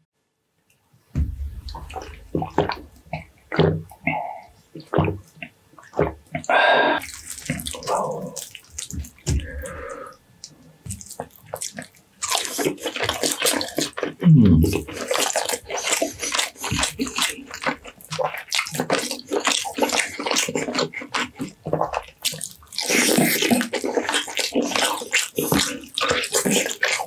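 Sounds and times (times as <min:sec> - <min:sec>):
brief loud low thud: 0:01.2 - 0:01.8
wet chewing with mouth clicks: 0:01.6 - 0:27.0.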